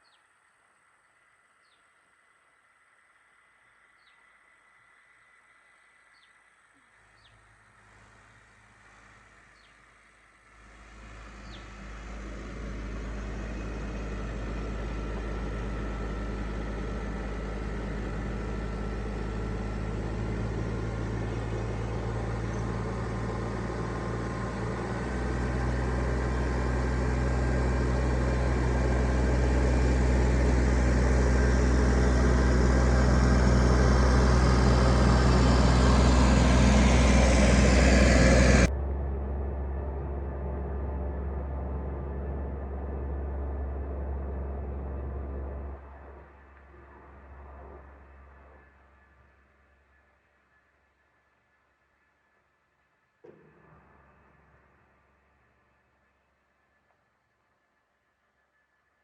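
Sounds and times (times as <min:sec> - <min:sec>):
car engine humming: 0:10.4 - 0:49.2.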